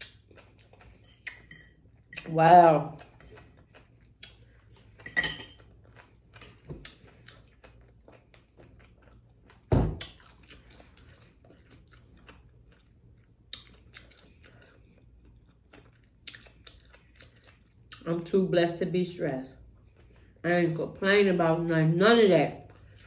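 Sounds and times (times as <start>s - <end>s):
chewing with wet mouth clicks: 0.0s - 2.3s, 2.9s - 18.1s.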